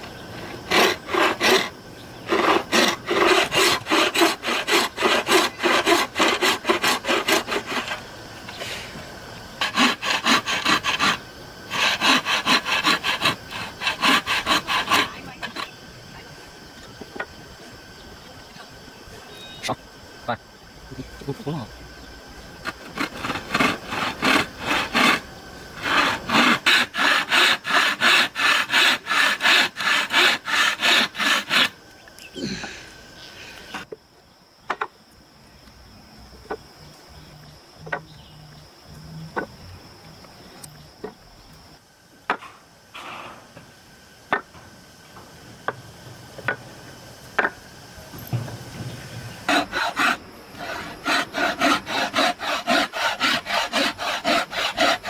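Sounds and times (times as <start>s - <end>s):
hand tool strokes on wood: 0.0s - 15.7s, 22.6s - 25.2s, 25.8s - 31.7s, 49.4s - 55.0s.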